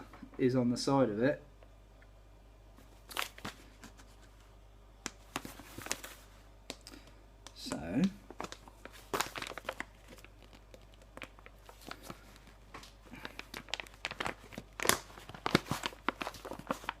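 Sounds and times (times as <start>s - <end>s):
plastic pouch crinkling and tearing: 3.0s - 3.7s, 5.0s - 7.7s, 8.3s - 17.0s.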